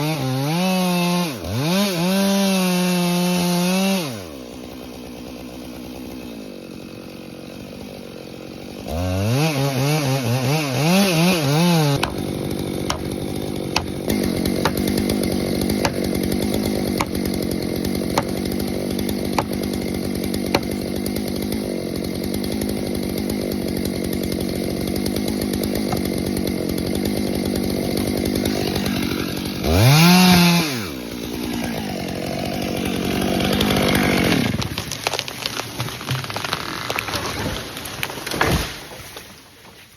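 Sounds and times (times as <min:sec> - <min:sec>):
chainsaw revving and idling: 0:00.0 - 0:38.9
sharp cracks: 0:34.6 - 0:39.2.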